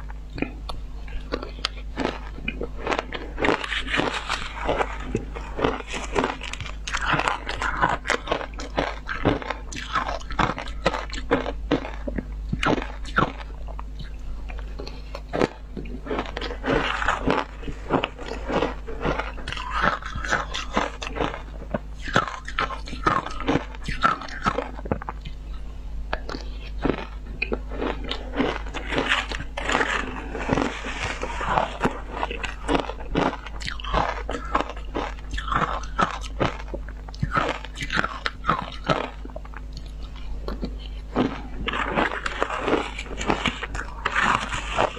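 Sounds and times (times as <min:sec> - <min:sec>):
ice being chewed: 0:00.0 - 0:44.9.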